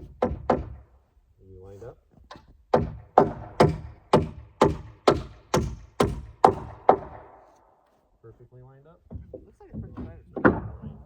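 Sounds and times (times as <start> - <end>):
hammer driving nails into wood: 0.0 - 0.9, 2.3 - 7.5, 9.1 - 11.0.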